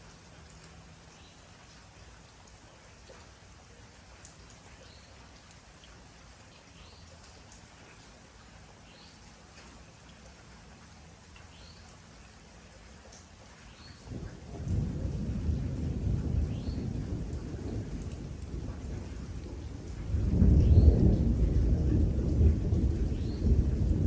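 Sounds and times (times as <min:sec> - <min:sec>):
raindrops ticking: 0:00.0 - 0:24.0
steady rain: 0:00.0 - 0:24.0
low rumble of thunder: 0:13.8 - 0:24.0.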